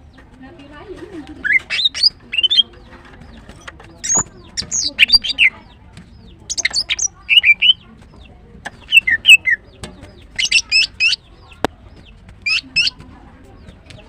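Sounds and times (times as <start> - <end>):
bird chirping in quick bursts: 1.4 - 2.6, 4.0 - 5.6, 6.5 - 7.8, 8.8 - 9.6, 10.3 - 11.5, 12.4 - 13.0.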